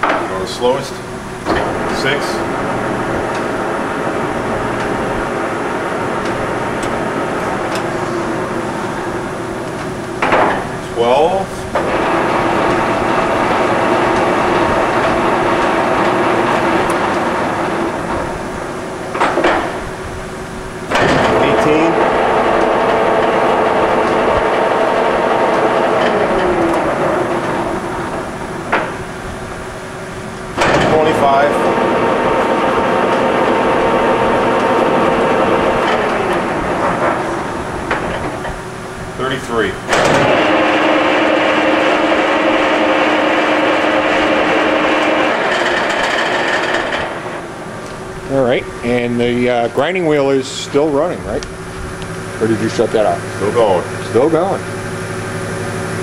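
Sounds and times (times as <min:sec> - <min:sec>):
machine whining tones: 0:00.0 - 0:56.0
surface grinder humming: 0:11.2 - 0:19.8, 0:20.8 - 0:30.0, 0:30.6 - 0:38.6, 0:39.9 - 0:49.2.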